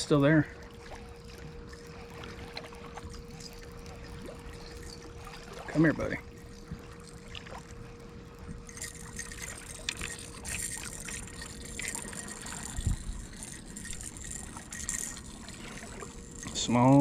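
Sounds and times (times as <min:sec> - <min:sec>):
water trickling and splashing: 0:00.0 - 0:17.0
fishing reel clicks: 0:03.1 - 0:06.2, 0:08.6 - 0:17.0.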